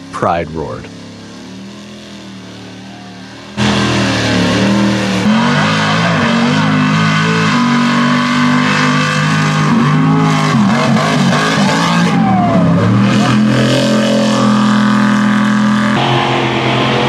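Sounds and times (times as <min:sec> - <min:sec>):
truck engines revving hard: 0:00.0 - 0:17.0
dense rushing noise: 0:03.5 - 0:06.2.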